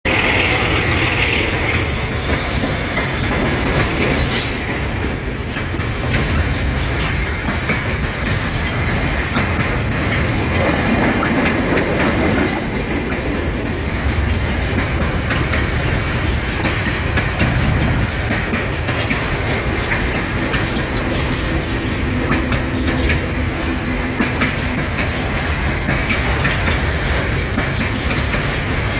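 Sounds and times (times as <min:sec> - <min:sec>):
freight train rumbling past: 0:00.0 - 0:28.9
train wheel squeals: 0:00.2 - 0:03.5, 0:04.1 - 0:05.0, 0:12.2 - 0:14.0.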